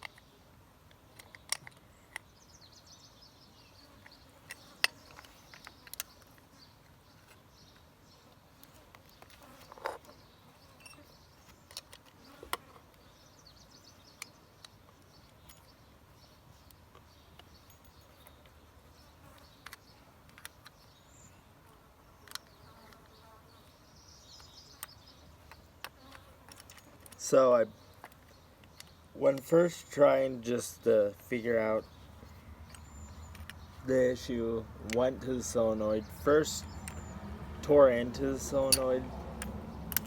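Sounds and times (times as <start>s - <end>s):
tools and metal parts clicking: 1.2s - 2.3s, 26.5s - 27.2s, 32.6s - 33.7s, 38.3s - 40.0s
faint insect buzz: 2.4s - 15.4s, 17.9s - 28.6s.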